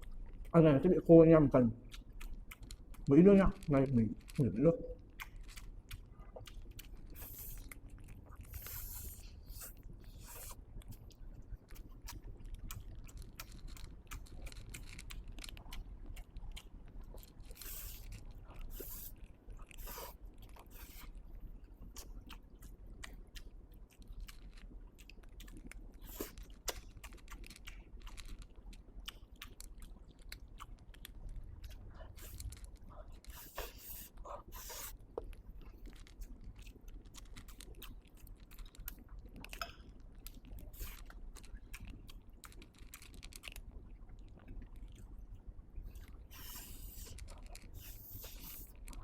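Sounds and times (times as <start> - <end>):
person chewing noodles: 0.0 - 0.6, 1.4 - 49.0.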